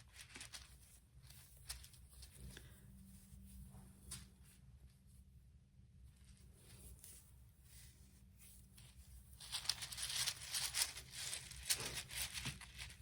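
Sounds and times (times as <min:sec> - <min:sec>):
bag crinkling and rustling: 0:09.4 - 0:13.0.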